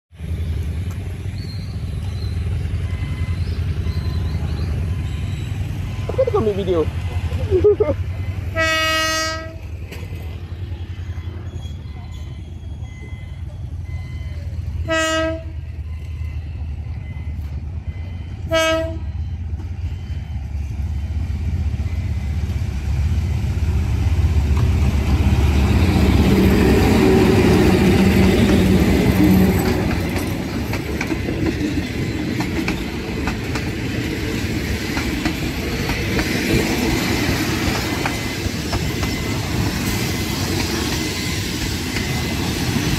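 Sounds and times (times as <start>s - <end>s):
locomotive engine rumble: 0.2s - 42.9s
train horn blasts: 8.4s - 9.8s, 14.8s - 15.7s, 18.4s - 19.3s.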